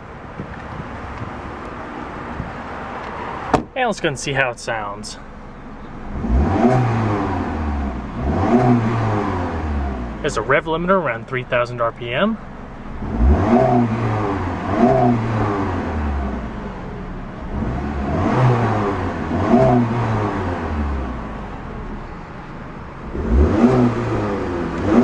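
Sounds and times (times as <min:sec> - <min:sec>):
car engine revving: 0:03.8 - 0:25.0.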